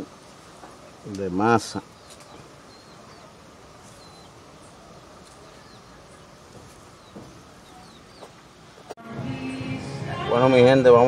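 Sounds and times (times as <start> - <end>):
faint bird chirps: 1.7 - 8.9.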